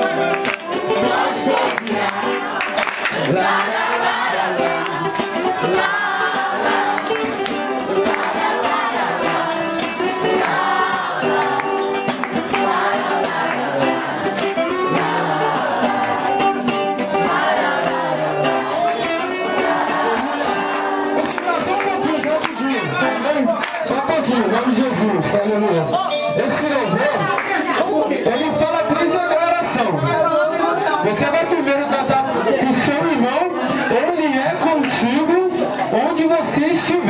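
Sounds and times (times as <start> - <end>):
gospel music with group singing: 0.0 - 30.1
tambourine shaking: 4.7 - 23.9.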